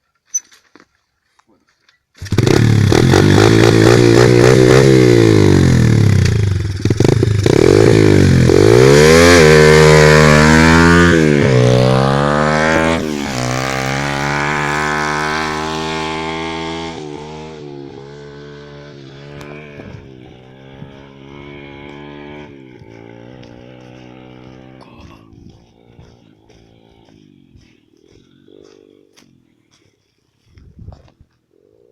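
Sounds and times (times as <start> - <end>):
pit bike engine revving: 2.2 - 27.7.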